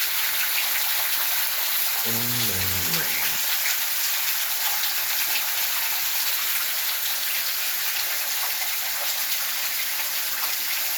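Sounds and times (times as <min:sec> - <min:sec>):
heavy rain pouring: 0:01.9 - 0:04.3.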